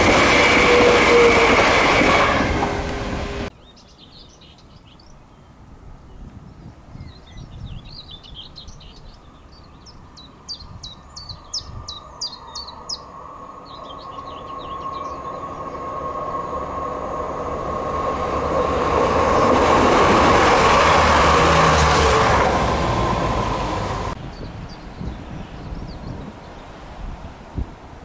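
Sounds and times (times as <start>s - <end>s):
diesel train approaching: 0.0s - 3.5s, 10.1s - 24.2s
bird chirping: 3.5s - 5.5s, 6.1s - 16.0s.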